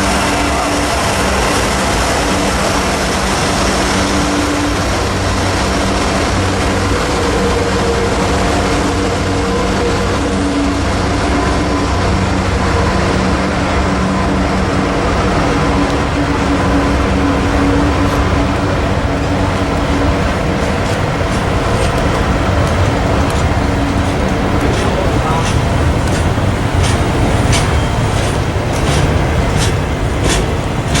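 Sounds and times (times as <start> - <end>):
diesel locomotive engine hum: 0.0 - 31.0
train wheels rolling on rail: 0.0 - 31.0.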